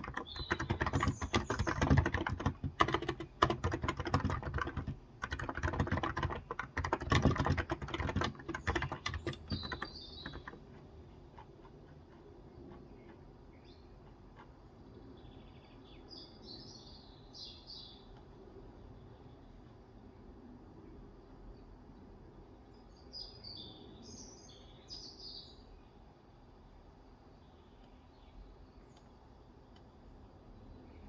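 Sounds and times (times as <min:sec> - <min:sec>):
fast keyboard typing: 0:00.0 - 0:13.2
birds chirping faintly: 0:00.0 - 0:31.0.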